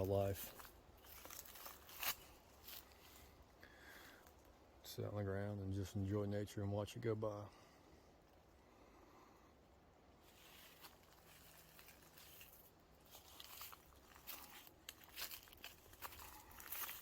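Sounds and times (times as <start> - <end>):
crunching in dry leaves: 0.0 - 3.4, 10.2 - 17.0.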